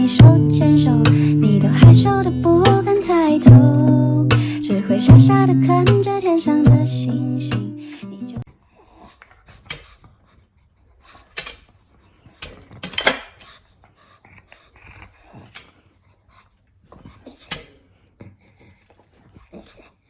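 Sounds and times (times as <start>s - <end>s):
dog breathing with light clicks: 8.9s - 20.0s.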